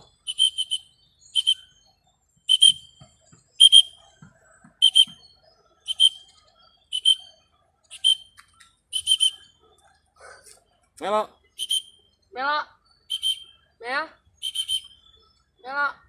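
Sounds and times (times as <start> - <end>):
whistle blasts: 0.3 - 1.7, 2.5 - 3.0, 3.6 - 4.0, 4.8 - 5.2, 5.9 - 6.3, 6.9 - 7.3, 7.9 - 9.5, 11.6 - 12.0, 13.1 - 13.6, 14.4 - 15.0.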